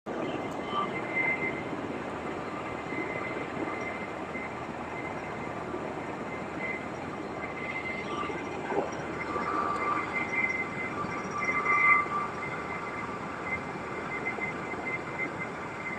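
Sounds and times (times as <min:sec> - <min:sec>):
helicopter engine and rotor rumble: 0:00.1 - 0:15.9
thin high whine: 0:00.1 - 0:15.9.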